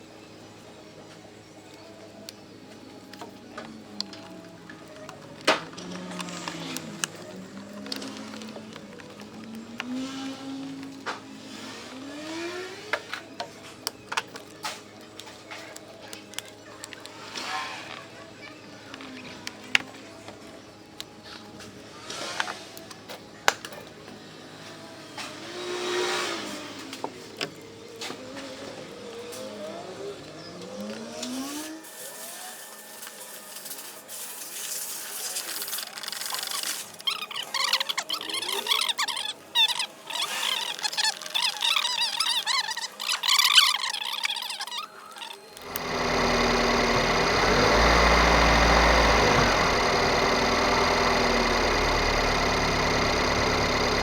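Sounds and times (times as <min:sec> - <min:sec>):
squeaks and clattering: 0:35.6 - 0:45.8
car engine starting and idling: 0:45.6 - 0:54.0.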